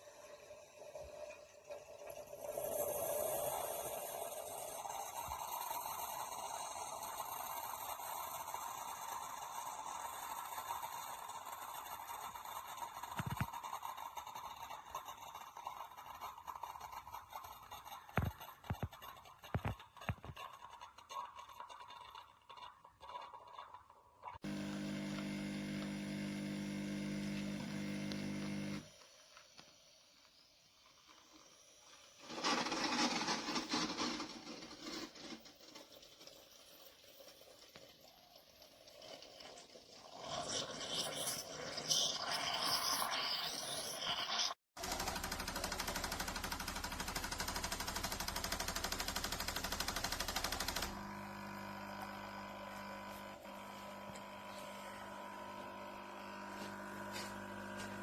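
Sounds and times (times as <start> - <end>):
coffee machine pump humming: 24.4 - 29.7, 44.8 - 58.0.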